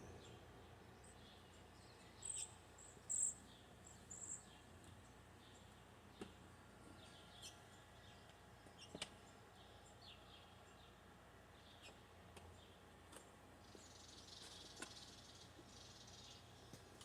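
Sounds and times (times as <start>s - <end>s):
faint bird chirps: 0.0s - 4.7s.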